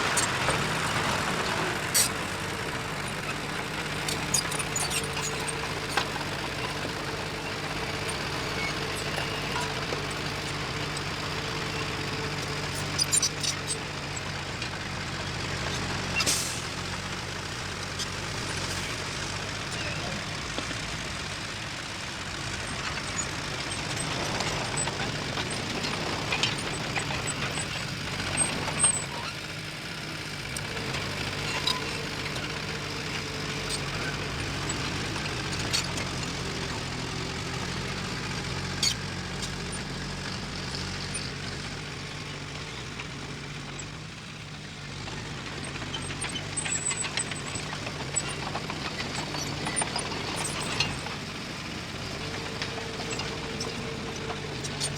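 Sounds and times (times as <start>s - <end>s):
diesel engine running: 0.0s - 54.9s
short high squeaks: 4.0s - 14.3s, 38.6s - 39.9s.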